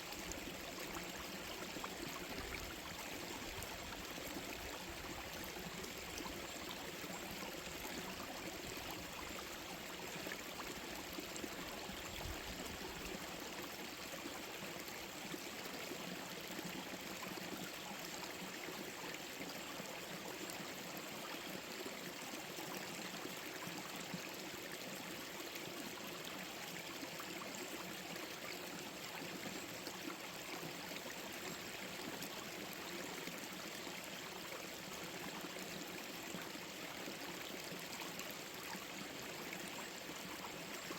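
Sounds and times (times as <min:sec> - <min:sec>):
stream flowing over rocks: 0:00.0 - 0:40.9.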